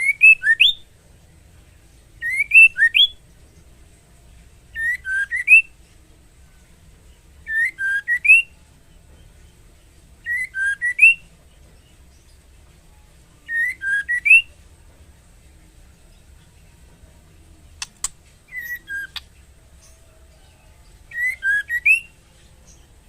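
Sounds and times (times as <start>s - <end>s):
bird whistling phrases: 2.2s - 3.2s, 4.8s - 5.7s, 7.5s - 8.5s, 10.2s - 11.2s, 13.5s - 14.5s, 17.8s - 19.3s, 21.1s - 22.2s.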